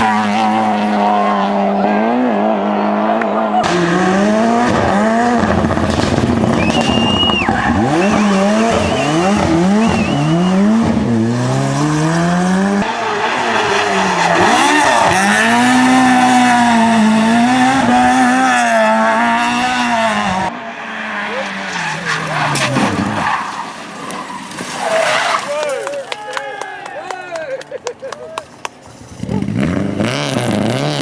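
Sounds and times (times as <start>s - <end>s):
race car engine revving: 0.0s - 23.6s, 28.9s - 31.0s
tyre squeal: 6.6s - 11.9s.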